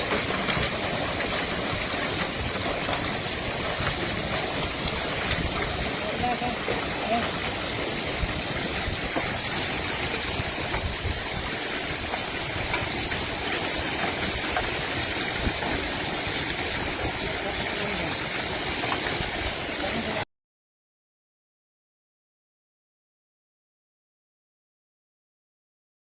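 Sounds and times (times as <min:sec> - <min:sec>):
floodwater rushing: 0:00.0 - 0:20.3.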